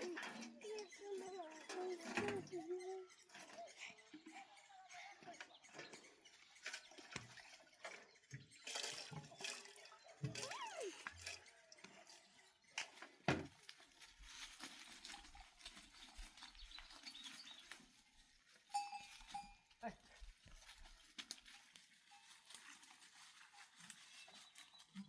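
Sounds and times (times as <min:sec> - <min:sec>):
water dripping and pattering: 0:00.0 - 0:13.0.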